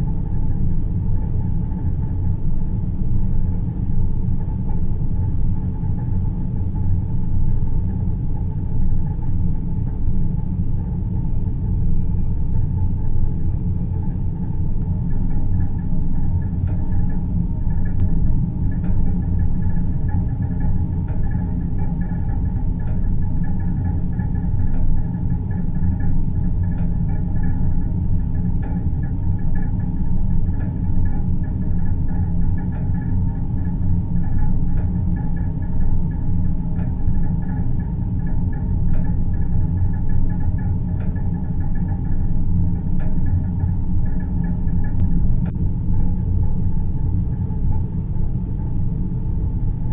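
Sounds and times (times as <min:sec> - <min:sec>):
deep rumbling hum: 0:00.0 - 0:49.9
soft faint ticks: 0:14.8 - 0:47.8
soft ticks: 0:17.8 - 0:18.1, 0:21.0 - 0:24.9, 0:34.2 - 0:42.2, 0:43.0 - 0:45.6.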